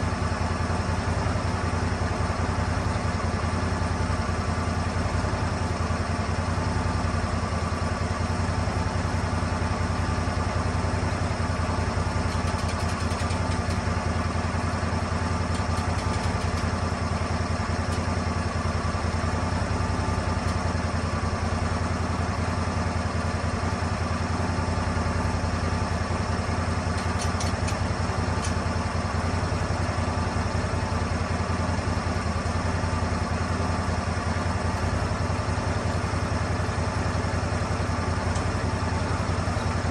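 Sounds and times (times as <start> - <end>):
sawmill petrol engine running: 0.0 - 39.9
faint light ticks: 15.5 - 16.7.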